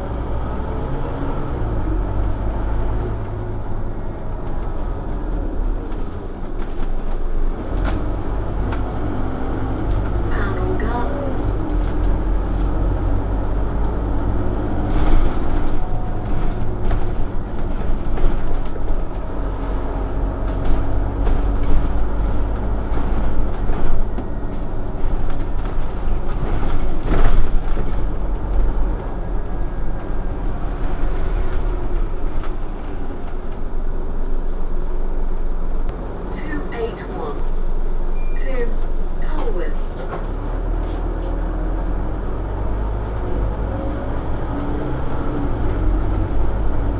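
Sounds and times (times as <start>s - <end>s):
bus diesel engine drone: 0.0s - 46.9s
road rumble: 0.0s - 46.9s
body rattles and knocks: 4.2s - 8.9s, 11.6s - 33.9s.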